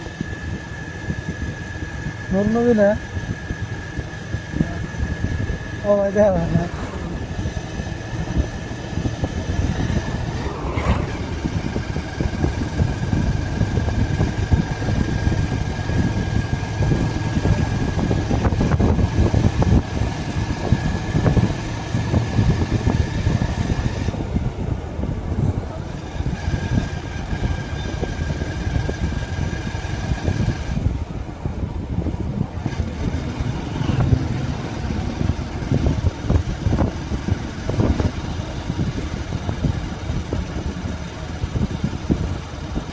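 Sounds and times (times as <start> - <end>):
steady high whine: 0.0 - 24.7
motorcycle engine rumble: 0.0 - 42.9.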